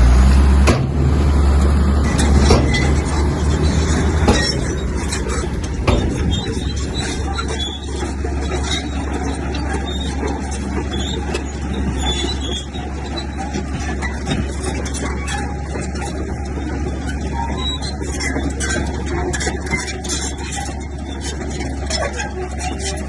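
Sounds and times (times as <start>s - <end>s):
diesel machinery engine drone: 0.0s - 23.0s
metallic clanking and rattling: 0.1s - 23.0s.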